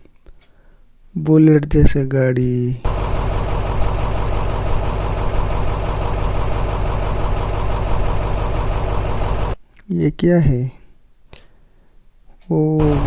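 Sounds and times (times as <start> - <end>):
motorcycle engine idling: 2.9 - 9.6, 12.8 - 13.0.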